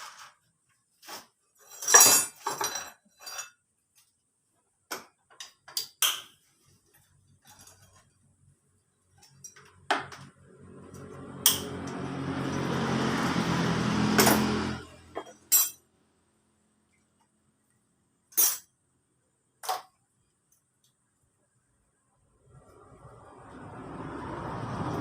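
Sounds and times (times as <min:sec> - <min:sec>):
metal tools clinking and knocking: 0:01.6 - 0:03.6, 0:07.0 - 0:08.2, 0:09.1 - 0:10.3, 0:15.1 - 0:15.8, 0:18.3 - 0:18.7.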